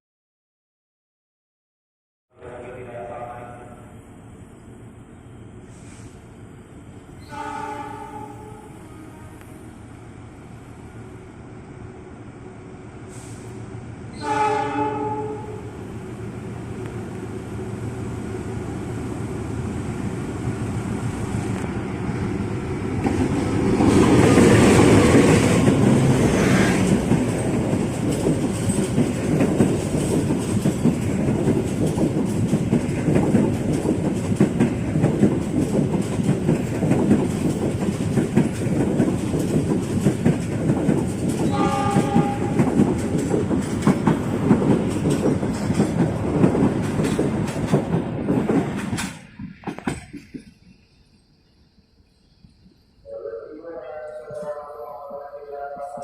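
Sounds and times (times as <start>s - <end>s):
train rumble and wheel clatter: 2.5s - 53.0s, 53.9s - 56.0s
train horn: 7.2s - 9.6s, 14.1s - 15.8s, 41.5s - 42.8s, 53.0s - 56.0s.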